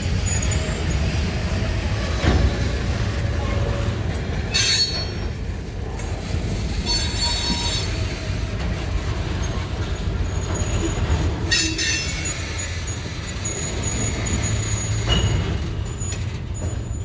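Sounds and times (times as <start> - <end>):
wheels squealing: 0.0 - 5.3, 9.1 - 17.0
locomotive rumbling along track: 0.0 - 17.0.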